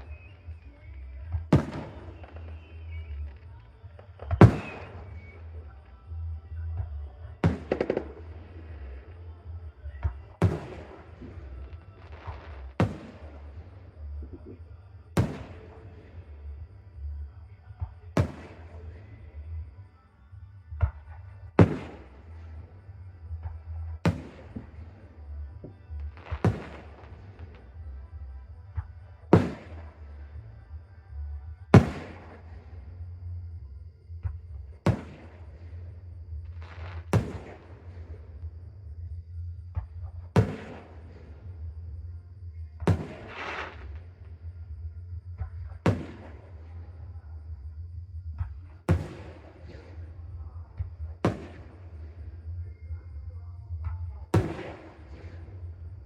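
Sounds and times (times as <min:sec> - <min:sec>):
fireworks bangs with echo: 0:00.0 - 0:05.7, 0:06.8 - 0:09.2, 0:09.9 - 0:17.2, 0:17.8 - 0:19.2, 0:20.8 - 0:22.7, 0:23.3 - 0:27.9, 0:28.7 - 0:30.5, 0:31.7 - 0:33.0, 0:34.2 - 0:38.4, 0:39.7 - 0:41.8, 0:42.8 - 0:44.2, 0:45.4 - 0:46.9, 0:48.4 - 0:52.3, 0:54.3 - 0:56.0
small firework pops: 0:00.0 - 0:06.0, 0:06.8 - 0:16.2, 0:17.7 - 0:19.2, 0:20.7 - 0:30.5, 0:31.7 - 0:33.0, 0:33.8 - 0:38.6, 0:39.7 - 0:41.8, 0:42.8 - 0:44.4, 0:45.4 - 0:46.9, 0:48.3 - 0:52.9, 0:53.8 - 0:56.0.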